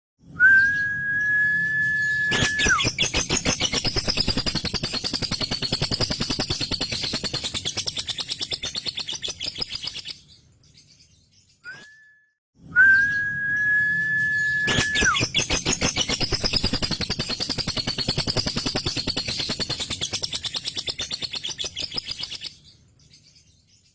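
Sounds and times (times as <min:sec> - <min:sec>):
bird whistle: 0:00.4 - 0:10.2, 0:11.6 - 0:22.5
bird chattering trill: 0:02.3 - 0:10.2, 0:14.7 - 0:22.6.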